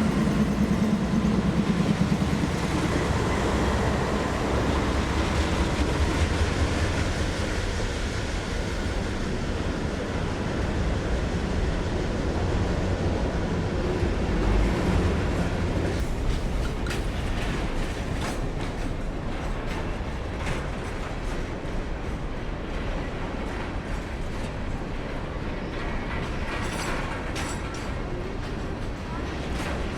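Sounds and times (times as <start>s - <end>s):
freight train rumbling by: 0.0s - 29.9s
wheels clicking over rail joints: 15.3s - 29.9s.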